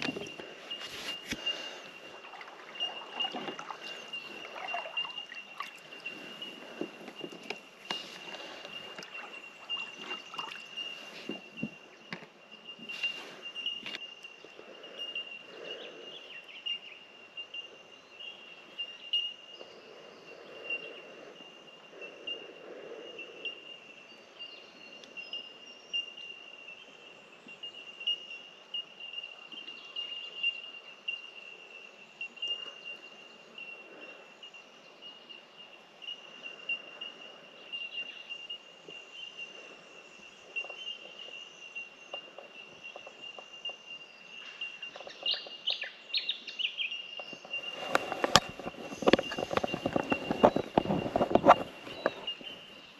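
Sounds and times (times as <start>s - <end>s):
birds giving pinging notes: 0.0s - 14.0s, 47.2s - 52.8s.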